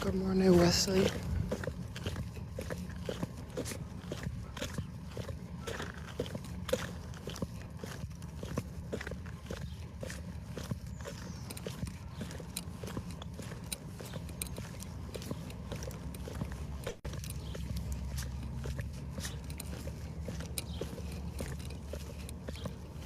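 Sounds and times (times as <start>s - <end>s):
footsteps crunching in snow: 0.0s - 23.0s.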